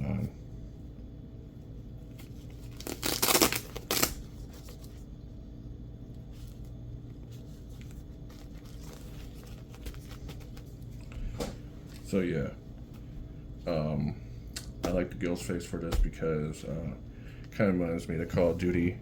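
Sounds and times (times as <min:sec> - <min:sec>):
velcro ripping: 0:02.6 - 0:04.3.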